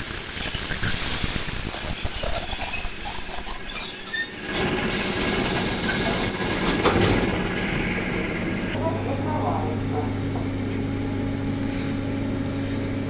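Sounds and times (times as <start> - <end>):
train wheels squealing: 0.0 - 8.2
train rumble: 0.0 - 11.6.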